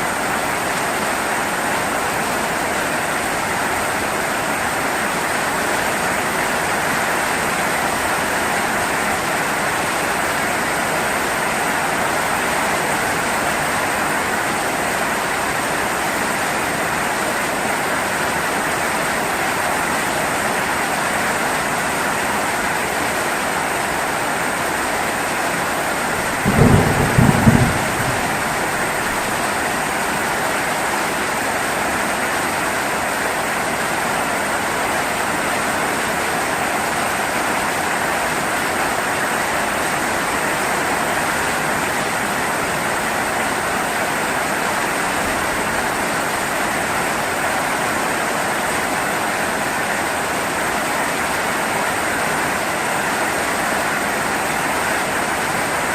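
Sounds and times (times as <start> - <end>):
steady rain hissing: 0.0 - 55.9
low clap of thunder: 26.4 - 29.4.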